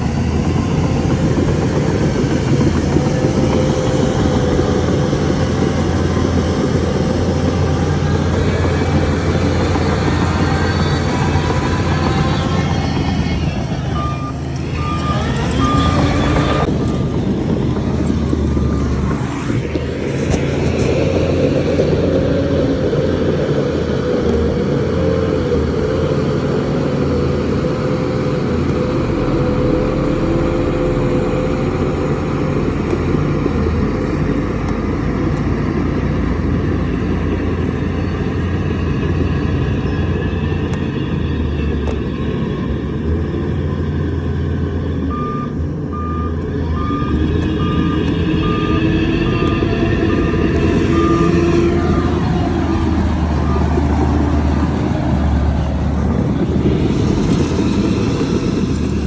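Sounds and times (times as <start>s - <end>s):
heavy diesel engine running: 0.0s - 59.0s
back-up alarm beeps: 13.9s - 16.7s, 45.1s - 49.6s, 50.8s - 52.2s.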